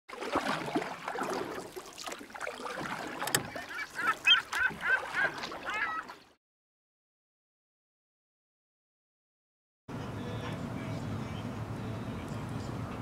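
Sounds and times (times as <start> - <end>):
birds calling rapidly: 3.4 - 6.2
noisy background: 9.9 - 13.0.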